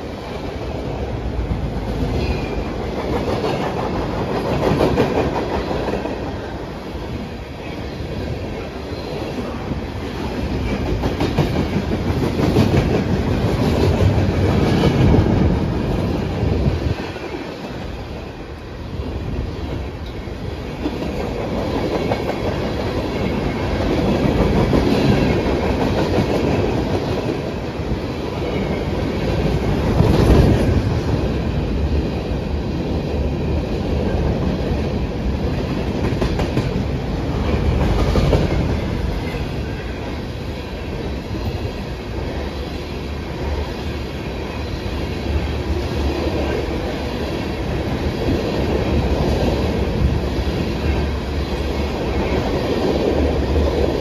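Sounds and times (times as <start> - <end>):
train wheels clicking over rail joints: 35.4 - 39.5.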